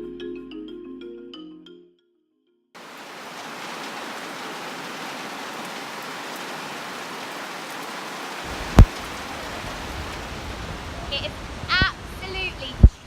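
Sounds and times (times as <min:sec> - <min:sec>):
torrential rain pouring: 0:02.8 - 0:13.0
waterfall rushing: 0:02.8 - 0:13.0.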